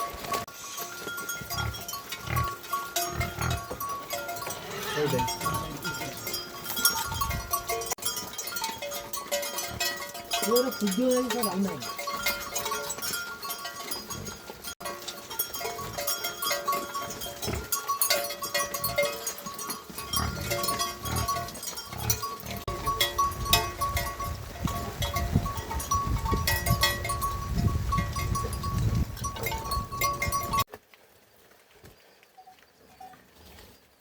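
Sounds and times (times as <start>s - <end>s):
livestock bleating: 4.5s - 6.2s.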